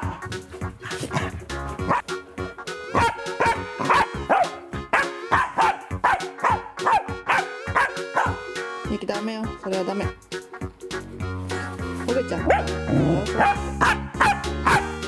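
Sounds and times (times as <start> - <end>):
dogs barking in play: 0.0 - 2.2, 2.9 - 8.4, 12.4 - 15.0
background music: 0.0 - 15.0.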